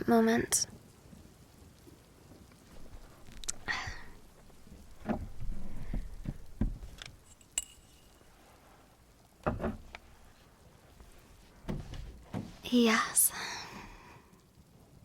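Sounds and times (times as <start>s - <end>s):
glass clinking: 7.2s - 8.4s.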